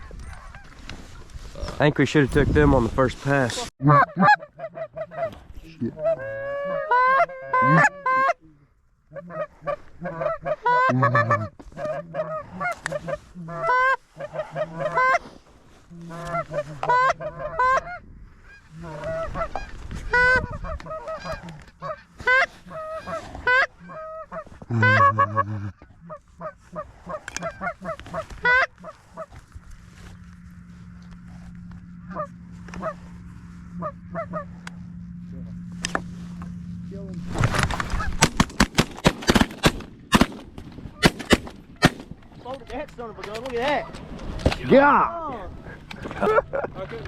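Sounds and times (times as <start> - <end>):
goose honks and clucks: 0.0 - 1.7, 3.4 - 36.5.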